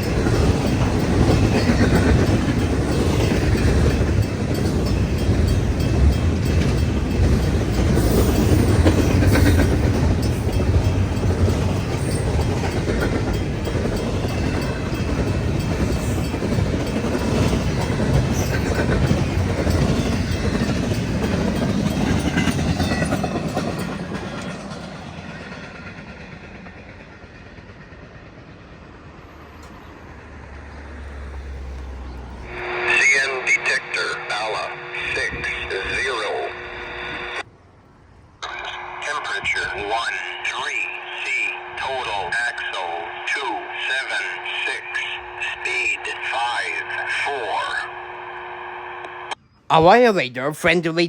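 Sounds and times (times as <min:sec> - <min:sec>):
freight train cars rolling: 0:00.0 - 0:37.5.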